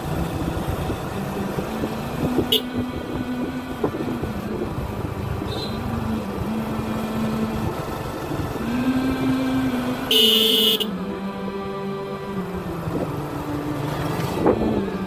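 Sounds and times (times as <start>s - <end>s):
motorcycle engine running: 0.0s - 11.5s
rushing wind and road noise: 0.0s - 15.0s.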